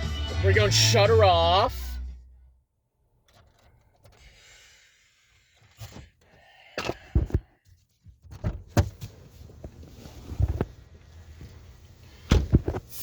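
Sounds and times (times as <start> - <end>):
knocks and thuds inside car: 8.1 - 10.8, 12.2 - 12.9.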